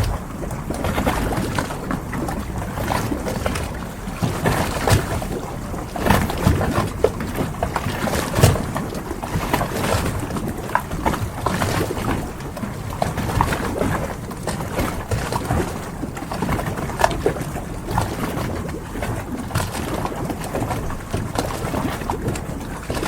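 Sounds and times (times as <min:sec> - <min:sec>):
water washing: 0:00.0 - 0:23.0
wind: 0:00.0 - 0:23.0.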